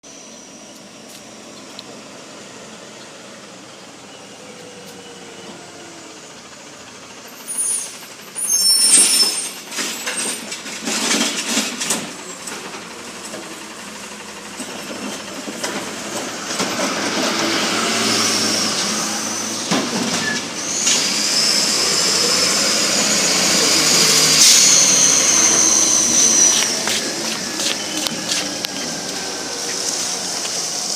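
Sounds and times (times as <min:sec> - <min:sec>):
brakes squealing and hissing: 0:00.0 - 0:30.9
garbage truck noise: 0:00.0 - 0:30.9
clattering and banging: 0:09.6 - 0:13.4.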